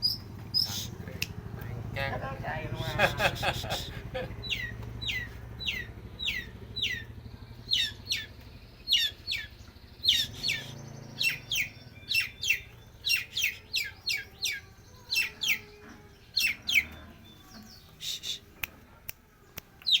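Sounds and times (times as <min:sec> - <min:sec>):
shrike chirping: 0:02.9 - 0:15.8.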